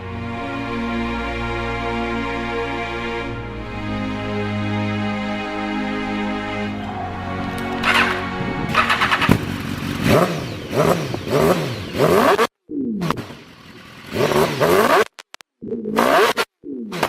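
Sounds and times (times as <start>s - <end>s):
motorcycle engine revving: 7.6s - 17.0s.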